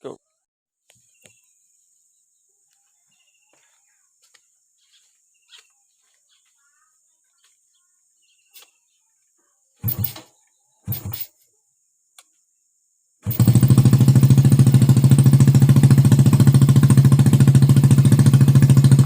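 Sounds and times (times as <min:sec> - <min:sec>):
birds chirping: 0:00.0 - 0:11.2
motorcycle engine blasts: 0:09.8 - 0:10.3, 0:10.9 - 0:11.3, 0:13.2 - 0:19.0.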